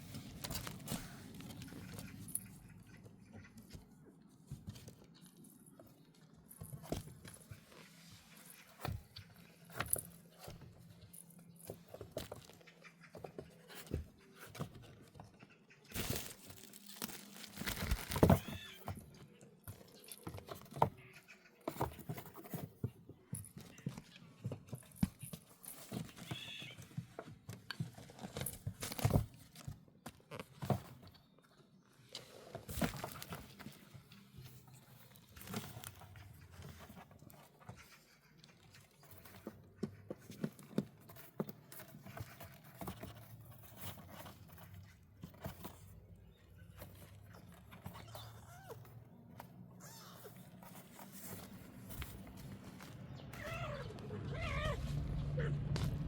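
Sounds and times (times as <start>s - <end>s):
kittens scuffling: 0.0s - 31.3s, 32.1s - 56.0s.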